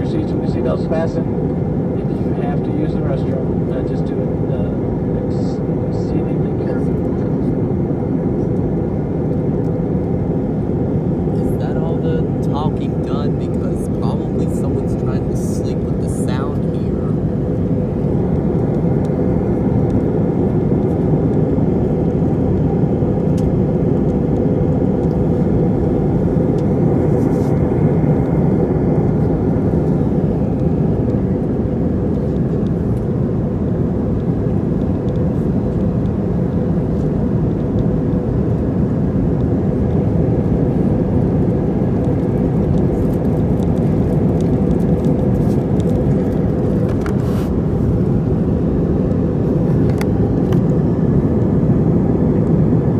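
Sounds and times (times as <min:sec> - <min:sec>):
airliner cabin engine rush: 0:00.0 - 0:52.9
steady hum: 0:09.7 - 0:20.8, 0:23.6 - 0:43.0.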